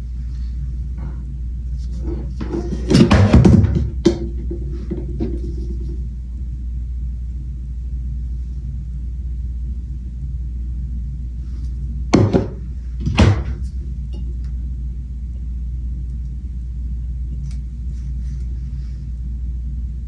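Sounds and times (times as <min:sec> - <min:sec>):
low background hum: 0:00.0 - 0:20.0
loud knocks: 0:02.1 - 0:05.7, 0:12.1 - 0:13.8.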